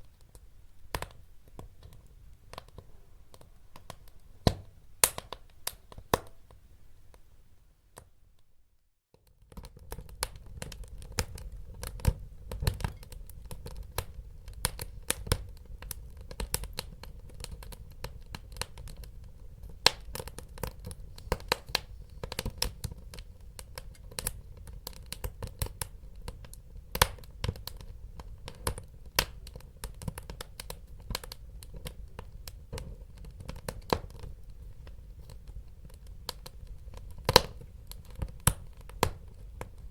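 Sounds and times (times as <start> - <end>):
wood fire crackling and popping: 0.1 - 6.5, 9.2 - 39.9.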